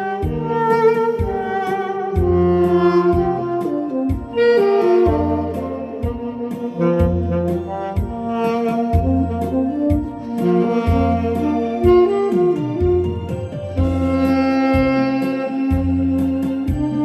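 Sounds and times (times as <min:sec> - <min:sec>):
bass: 0:00.0 - 0:17.0
saxophone melody: 0:00.0 - 0:17.0
steady drum beat: 0:00.0 - 0:17.0.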